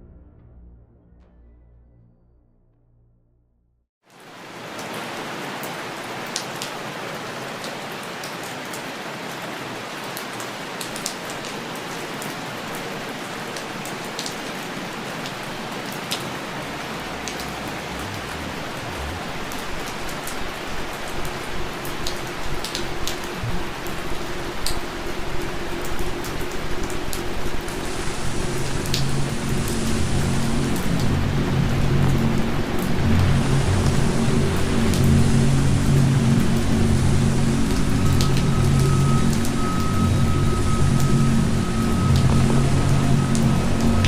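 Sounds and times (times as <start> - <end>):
low rumble: 0.0 - 3.8, 15.3 - 44.0
steady rain falling: 4.0 - 44.0
raindrops clicking: 15.2 - 27.8.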